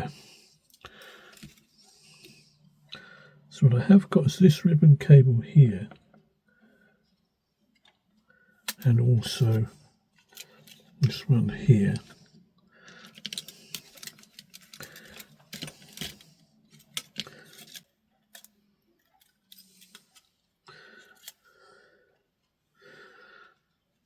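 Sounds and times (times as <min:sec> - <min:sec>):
plastic radio parts clicking and rattling: 0:00.6 - 0:02.4, 0:07.6 - 0:21.5.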